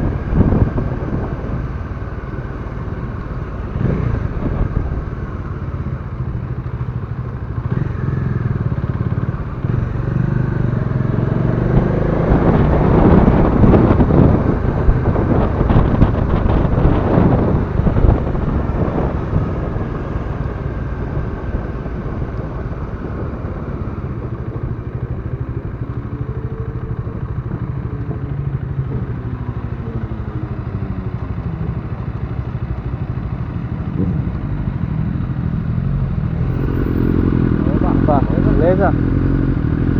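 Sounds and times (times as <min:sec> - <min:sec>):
wind rushing noise: 0:00.0 - 0:02.4, 0:09.1 - 0:27.5
motorcycle engine running: 0:00.0 - 0:39.9.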